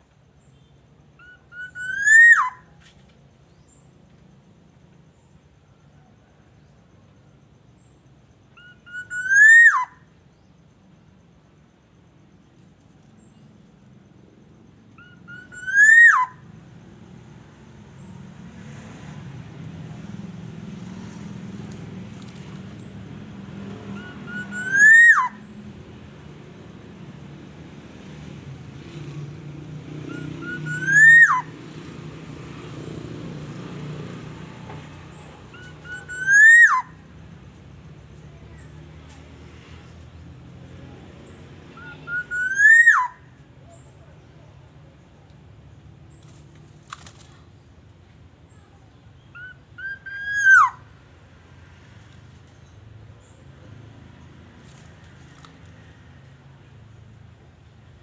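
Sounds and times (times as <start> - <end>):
bird fluty whistled call: 0.5 - 2.8, 8.6 - 10.1, 15.0 - 16.4, 24.0 - 25.5, 30.1 - 31.6, 35.5 - 37.0, 41.8 - 43.2, 49.3 - 50.8.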